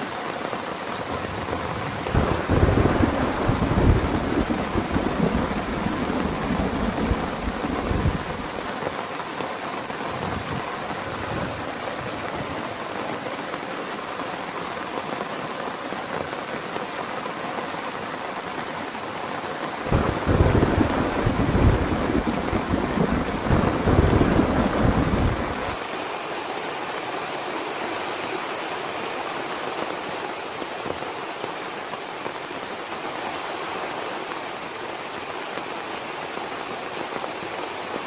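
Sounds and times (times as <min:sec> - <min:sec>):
heavy rain: 0:00.0 - 0:38.0
thunder rumble: 0:01.1 - 0:08.7, 0:19.9 - 0:25.8.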